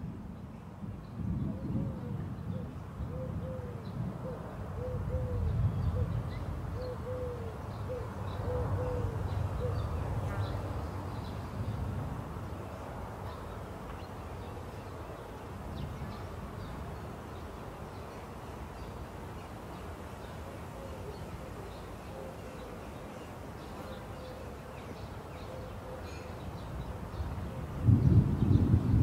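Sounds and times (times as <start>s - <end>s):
bird calling: 20.6s - 27.7s.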